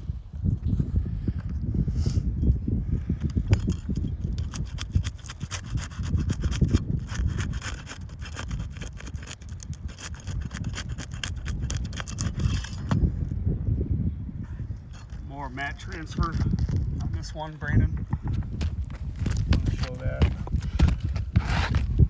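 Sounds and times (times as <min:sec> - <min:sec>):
shingles scraping and crackling: 0:03.2 - 0:13.0, 0:14.8 - 0:17.4, 0:18.1 - 0:22.0.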